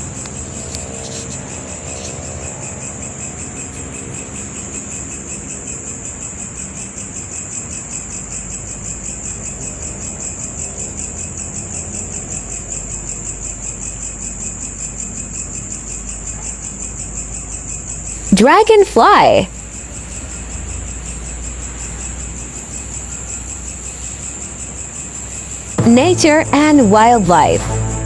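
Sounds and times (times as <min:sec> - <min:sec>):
insects chirring: 0:00.0 - 0:18.3.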